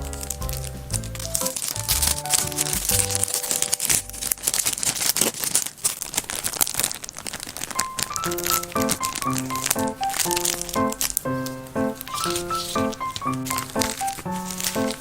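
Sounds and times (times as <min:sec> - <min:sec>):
light background music: 0:00.0 - 0:04.4, 0:07.8 - 0:15.0
packaging crinkling: 0:00.0 - 0:15.0.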